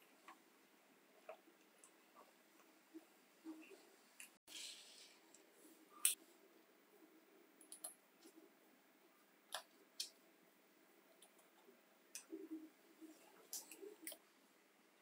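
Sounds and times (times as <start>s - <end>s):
small parts clicking and tapping: 7.6s - 8.4s.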